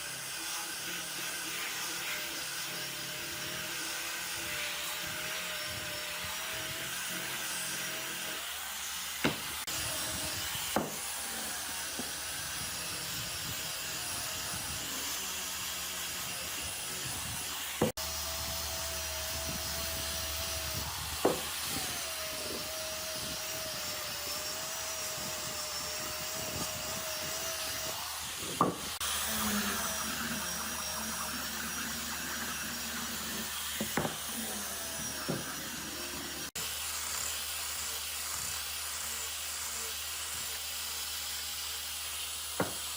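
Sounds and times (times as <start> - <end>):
power tool motor whine: 0.0 - 42.9
sharp knocks of wood: 9.2 - 9.5, 10.8 - 11.0, 21.2 - 21.5, 28.5 - 28.9, 42.6 - 42.8.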